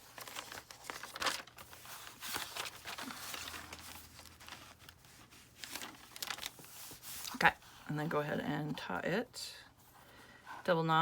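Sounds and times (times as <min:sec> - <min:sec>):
paper pages rustling: 0:00.0 - 0:07.9.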